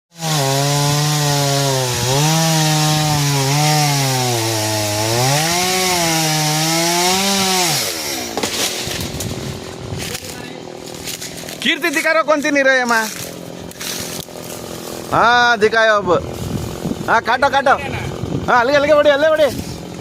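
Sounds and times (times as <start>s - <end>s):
chainsaw cutting wood: 0.1s - 20.0s
sharp knocks and cracks: 8.2s - 9.4s.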